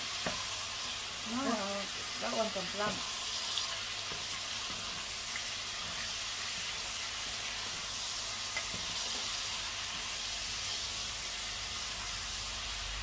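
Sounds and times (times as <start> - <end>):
pork sizzling in a pot: 0.0 - 13.0.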